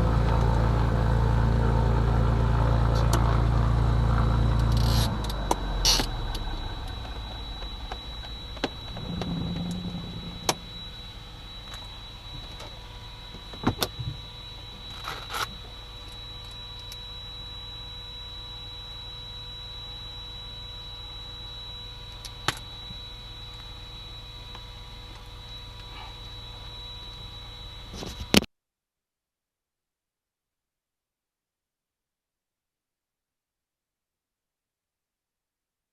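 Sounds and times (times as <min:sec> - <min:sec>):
high electrical whine and hum: 0:00.0 - 0:28.5.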